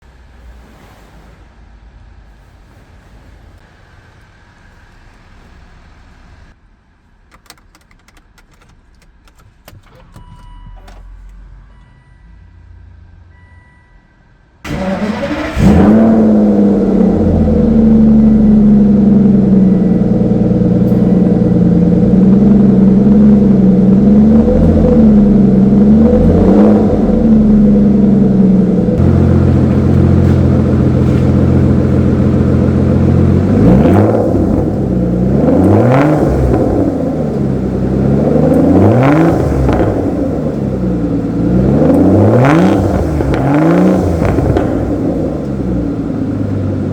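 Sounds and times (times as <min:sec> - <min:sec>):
faint chime tones: 0:11.5 - 0:12.7, 0:13.3 - 0:14.3
car engine starting and revving: 0:14.6 - 0:46.9
car engine fast idle: 0:14.7 - 0:33.6.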